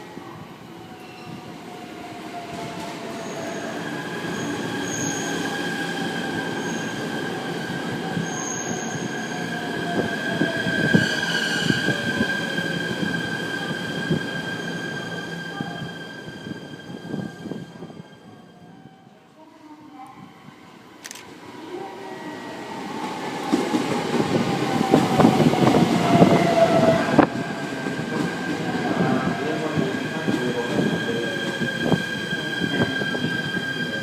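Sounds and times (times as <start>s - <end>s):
wheels squealing on rails: 3.1s - 19.0s, 25.1s - 34.0s.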